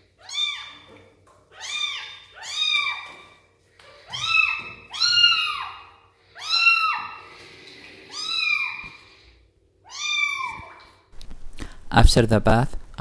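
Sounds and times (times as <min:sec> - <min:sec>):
kitten meowing: 0:00.2 - 0:00.9, 0:01.6 - 0:03.2, 0:04.1 - 0:07.2, 0:08.1 - 0:09.0, 0:09.9 - 0:10.8.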